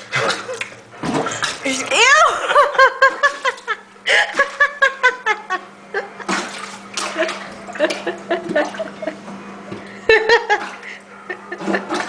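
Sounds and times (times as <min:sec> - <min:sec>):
water splashing in sink: 0:00.0 - 0:05.3, 0:06.2 - 0:09.1, 0:11.5 - 0:12.0
person laughing: 0:02.2 - 0:06.3, 0:07.1 - 0:09.2, 0:09.9 - 0:12.0.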